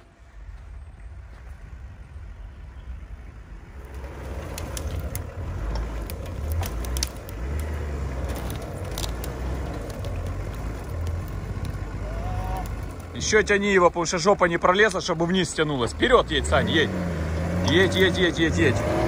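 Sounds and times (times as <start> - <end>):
engine running: 0.0 - 19.0
sharp clicks and crackles: 3.8 - 13.4.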